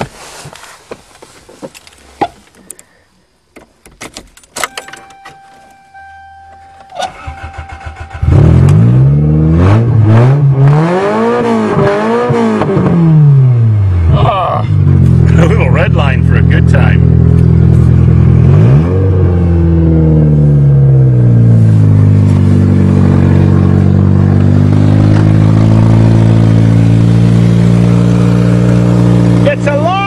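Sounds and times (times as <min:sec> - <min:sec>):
car starter cranking: 0:03.7 - 0:08.8
steady electronic dashboard tone: 0:04.6 - 0:12.0, 0:12.8 - 0:30.0
car engine revving: 0:06.0 - 0:30.0.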